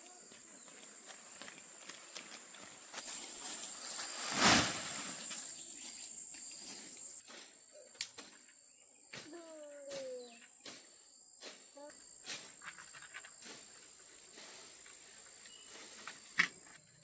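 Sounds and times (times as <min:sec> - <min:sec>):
insects chirring: 0:00.0 - 0:17.0
brief loud rush of noise: 0:04.0 - 0:05.5.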